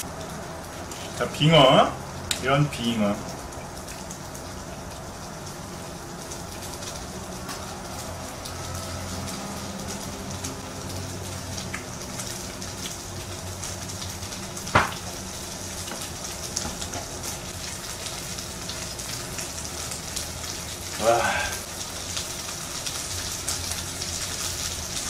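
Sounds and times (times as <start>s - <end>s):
food frying in hot oil: 0.0s - 25.0s
sharp knock: 14.8s - 15.0s.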